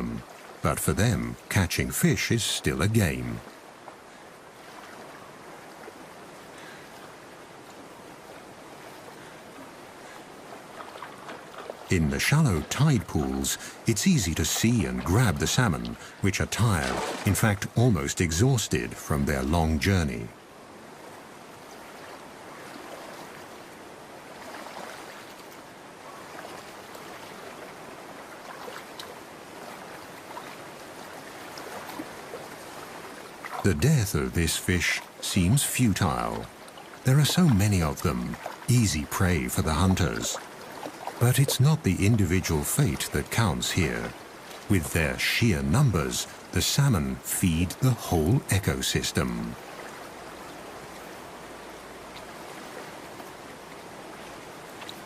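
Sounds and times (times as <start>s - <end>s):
running water: 0.0s - 55.0s.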